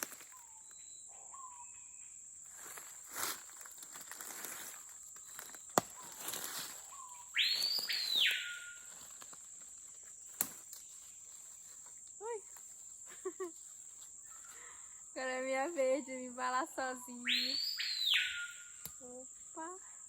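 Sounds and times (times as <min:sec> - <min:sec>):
high-pitched insect drone: 0:06.2 - 0:10.0, 0:10.7 - 0:20.0
bird whistles: 0:06.9 - 0:08.9, 0:17.2 - 0:18.8.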